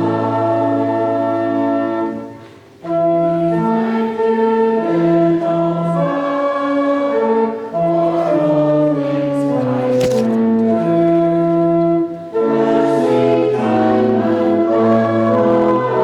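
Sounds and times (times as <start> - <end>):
congregation singing a hymn: 12.6 - 16.0.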